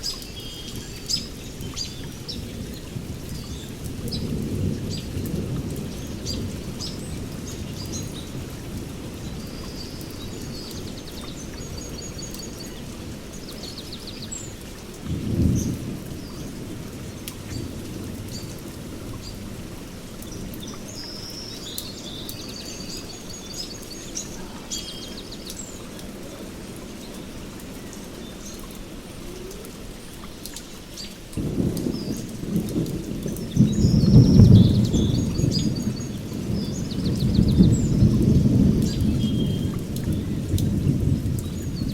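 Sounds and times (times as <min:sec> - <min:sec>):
steady rain: 0:00.0 - 0:41.9
thunder rumbling: 0:15.1 - 0:20.9, 0:31.4 - 0:41.9
birds chirping and trilling: 0:20.2 - 0:26.1.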